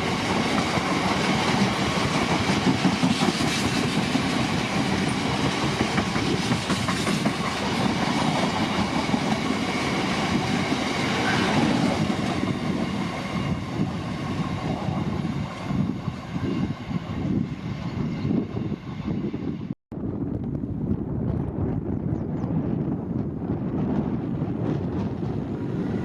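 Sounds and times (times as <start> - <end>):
train wheels clattering over rails: 0.0 - 13.7.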